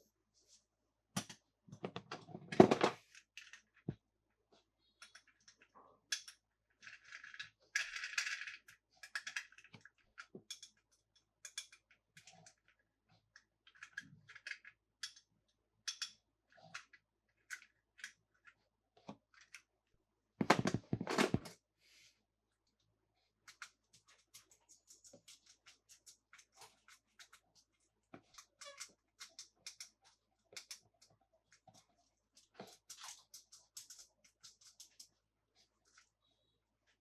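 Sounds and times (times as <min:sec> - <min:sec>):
toys clicking and tapping: 0:05.0 - 0:12.7, 0:23.4 - 0:31.6, 0:32.5 - 0:35.1.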